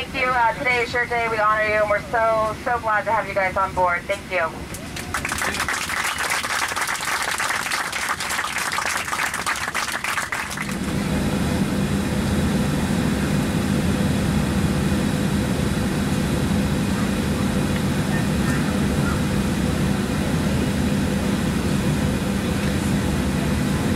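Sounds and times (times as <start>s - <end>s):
airliner cabin drone: 0.0s - 23.9s
crowd applauding: 4.7s - 10.9s.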